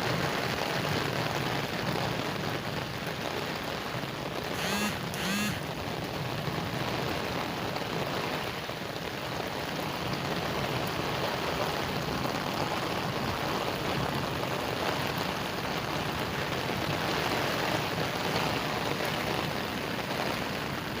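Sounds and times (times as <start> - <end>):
heavy rain hissing: 0.0 - 21.0.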